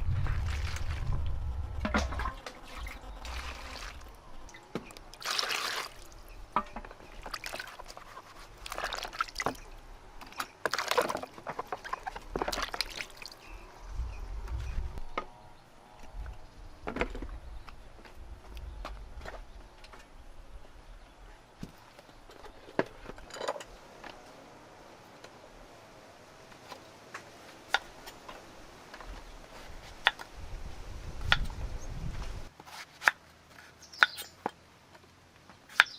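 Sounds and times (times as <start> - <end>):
water sloshing and trickling: 0.2 - 13.7.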